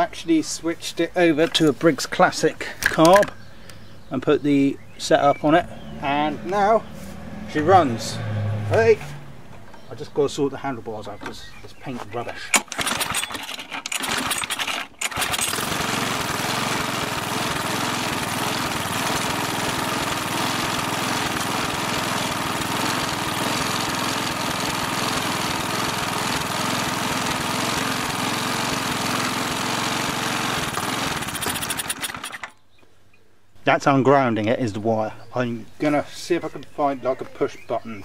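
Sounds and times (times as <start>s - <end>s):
lawn mower engine running: 12.5s - 32.6s.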